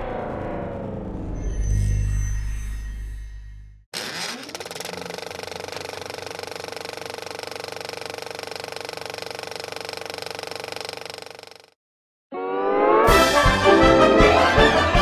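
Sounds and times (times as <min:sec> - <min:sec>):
fast mechanical rattle: 0:04.0 - 0:11.8.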